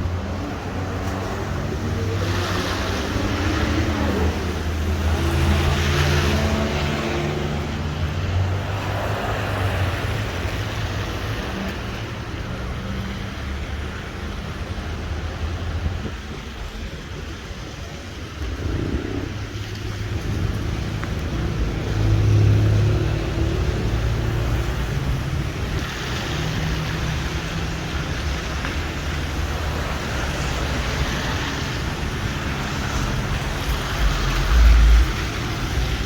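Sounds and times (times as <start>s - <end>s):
tyre hiss on wet road: 18.4s - 36.0s.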